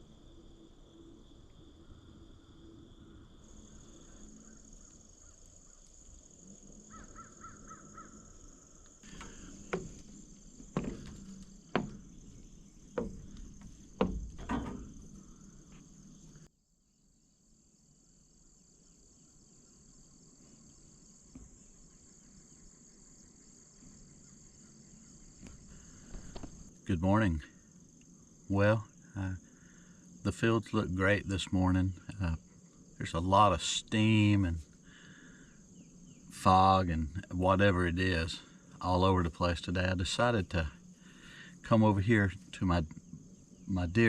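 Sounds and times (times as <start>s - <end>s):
high-pitched insect drone: 0.0s - 16.5s, 17.1s - 44.0s
bird calling: 6.8s - 16.5s.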